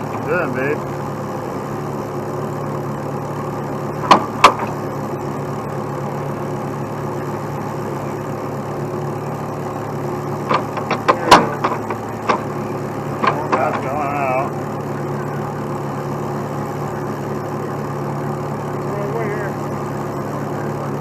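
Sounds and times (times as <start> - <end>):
heavy truck engine idling: 0.0 - 21.0
sharp knocks: 4.0 - 4.8, 10.4 - 12.5.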